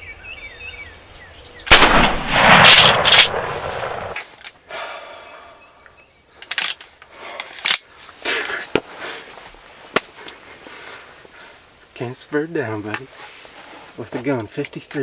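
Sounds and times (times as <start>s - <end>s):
shotgun shot echo: 1.7s - 4.2s.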